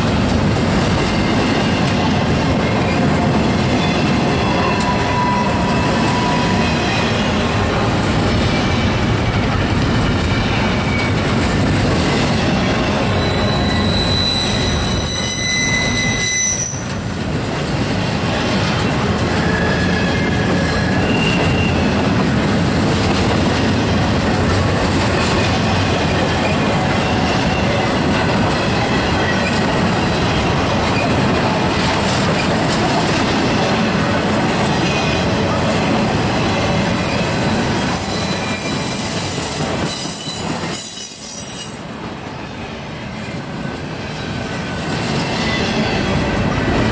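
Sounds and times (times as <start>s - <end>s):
train wheels rumbling on rail: 0.0s - 46.9s
high wheel squeals: 12.9s - 17.1s, 19.0s - 22.0s, 36.2s - 41.9s.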